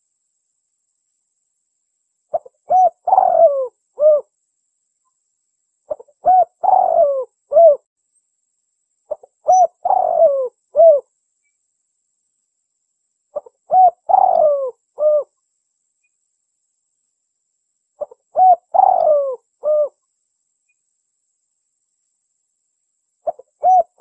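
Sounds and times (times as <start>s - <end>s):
dove cooing: 2.3s - 4.3s, 5.9s - 7.8s, 9.1s - 11.0s, 13.4s - 15.3s, 18.0s - 20.0s, 23.2s - 24.0s.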